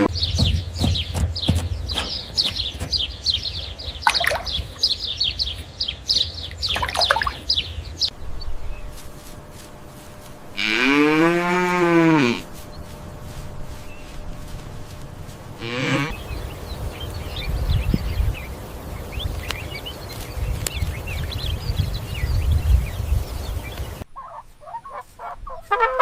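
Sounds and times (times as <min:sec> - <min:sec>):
small birds chirping: 0:00.0 - 0:10.9, 0:11.6 - 0:25.6
cow mooing: 0:10.6 - 0:12.6, 0:15.6 - 0:16.2.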